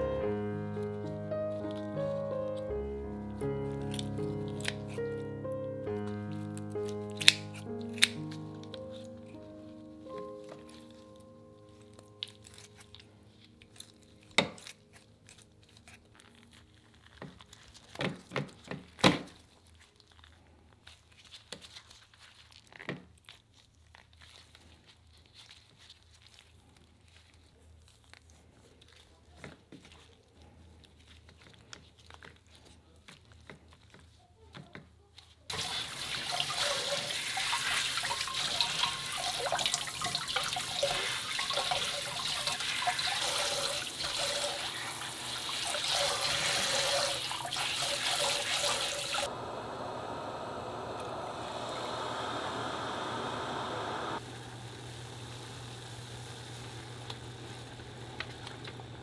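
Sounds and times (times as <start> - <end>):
kitchen faucet spray: 35.5 - 49.3
pot of water boiling: 35.5 - 59.0.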